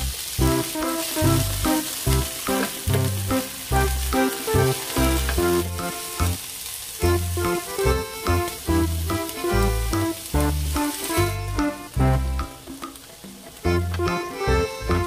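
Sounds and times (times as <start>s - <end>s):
music with repeating bass line: 0.0s - 6.4s, 7.0s - 12.8s, 13.6s - 15.0s
vegetables sizzling in a pan: 0.0s - 15.0s
spatula stirring in a pan: 0.1s - 11.4s.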